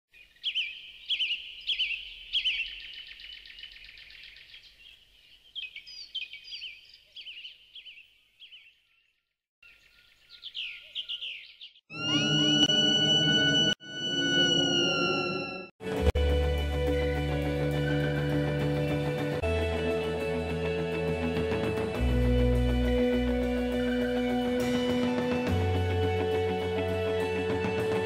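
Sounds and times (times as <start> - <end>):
small birds chirping: 0.1 - 11.9
loud music: 11.9 - 28.0.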